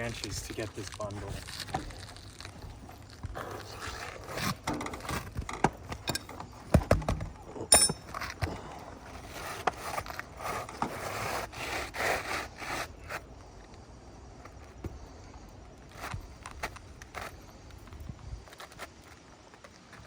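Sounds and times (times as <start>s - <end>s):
shingles scraping and rubbing: 0.0s - 7.5s, 8.1s - 13.6s.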